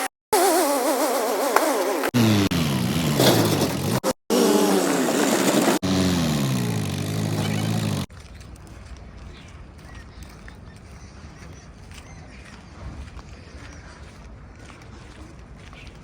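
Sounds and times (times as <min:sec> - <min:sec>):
engine revving down: 0:00.0 - 0:08.1.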